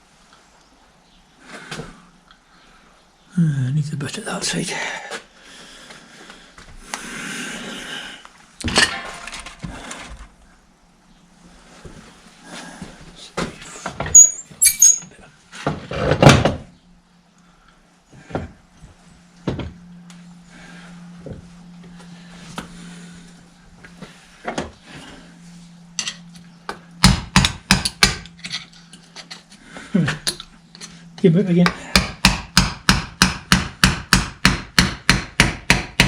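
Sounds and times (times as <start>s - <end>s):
metal parts clunking and scraping: 8.6s - 10.4s, 14.0s - 16.6s, 26.0s - 26.3s, 28.2s - 31.0s
metal clatter: 8.7s - 9.6s
sharp knocks on metal part: 27.0s - 28.2s.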